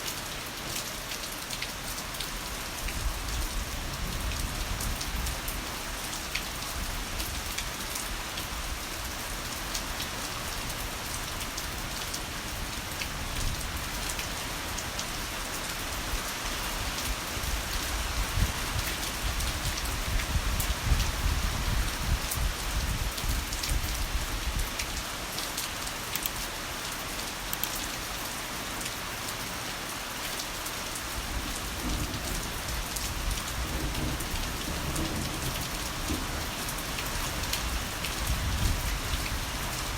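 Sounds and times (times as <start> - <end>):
heavy rain: 0.0 - 39.9
close raindrop impacts: 31.2 - 39.9.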